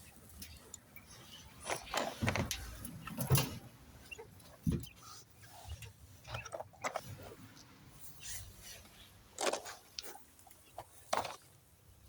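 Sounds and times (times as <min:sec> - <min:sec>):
hands handling objects: 0:04.3 - 0:11.6.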